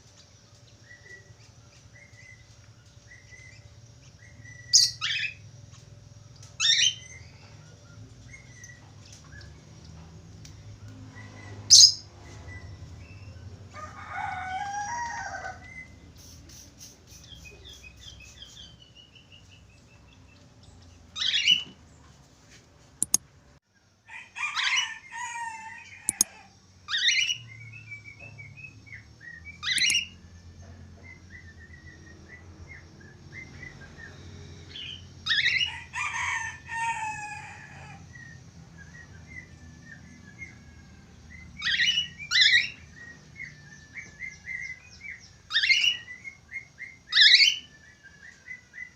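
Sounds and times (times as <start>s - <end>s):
sharp clicks: 23.0s - 23.2s, 29.8s - 30.0s
budgerigar chirping and warbling: 29.6s - 30.1s.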